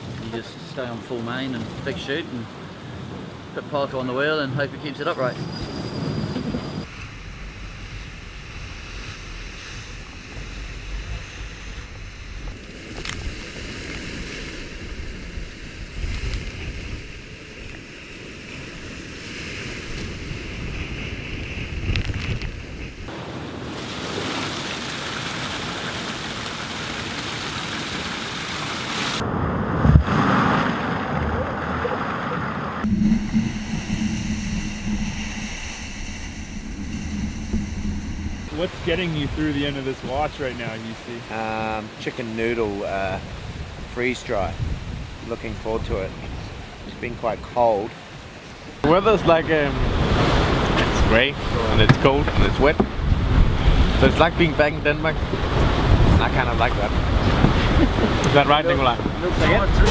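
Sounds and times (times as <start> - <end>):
wind and sea rushing: 0.0 - 59.9
wind buffeting microphone: 43.2 - 47.0, 49.6 - 59.9.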